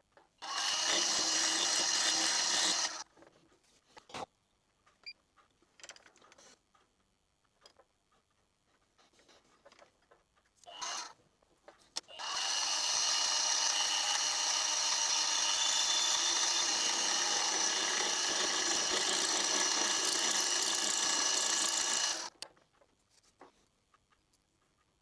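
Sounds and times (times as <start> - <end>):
power tool motor whining: 0.4 - 3.0, 10.7 - 11.2, 12.1 - 22.3.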